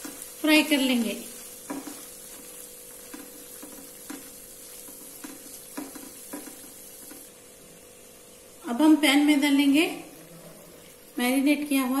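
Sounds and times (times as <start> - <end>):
paste sizzling in oil: 0.0 - 8.7
spatula scraping a pan: 1.2 - 7.3.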